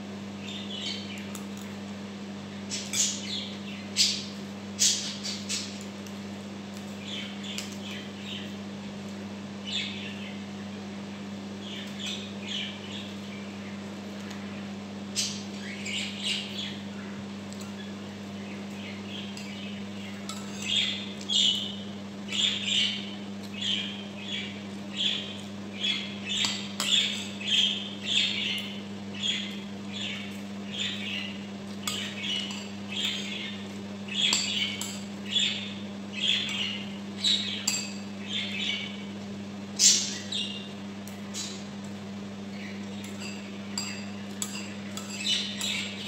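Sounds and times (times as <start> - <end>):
spoon clinking on a plate: 37.6 - 38.0, 43.0 - 45.7.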